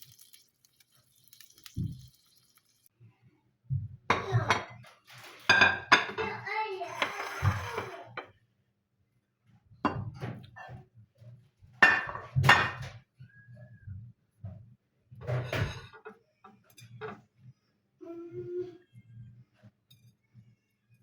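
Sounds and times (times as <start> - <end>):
dishes and cutlery clinking: 4.1 - 8.4, 9.9 - 10.8, 11.8 - 13.0, 15.2 - 17.3.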